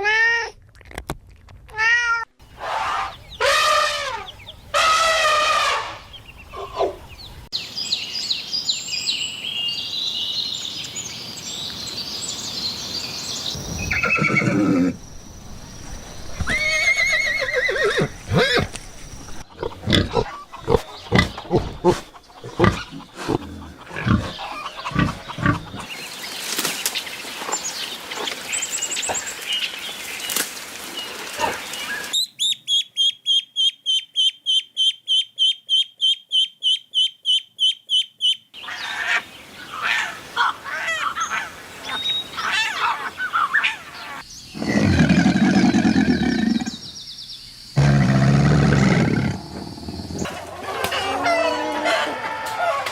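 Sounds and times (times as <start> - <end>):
high chirping calls: 32.0 - 48.0.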